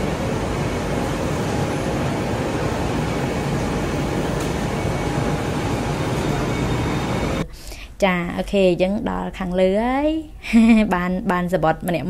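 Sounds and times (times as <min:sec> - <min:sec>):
train rushing noise: 0:00.0 - 0:07.4.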